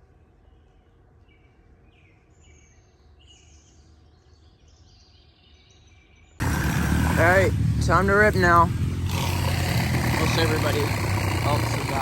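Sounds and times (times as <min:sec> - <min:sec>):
faint birds chirping: 0:00.0 - 0:09.1
loud dirt bike engine: 0:06.4 - 0:12.0.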